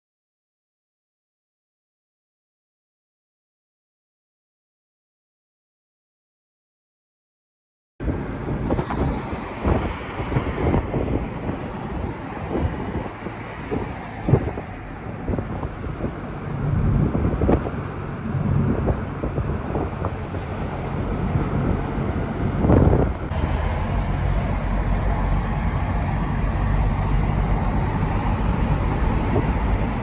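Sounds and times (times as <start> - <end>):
road noise: 8.0 - 30.0
wind on microphone: 8.0 - 30.0
truck engine hum: 8.1 - 30.0.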